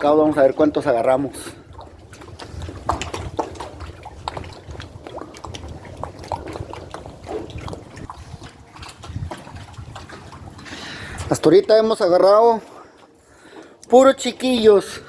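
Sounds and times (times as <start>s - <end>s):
wind rumbling on microphone: 0.0s - 11.4s.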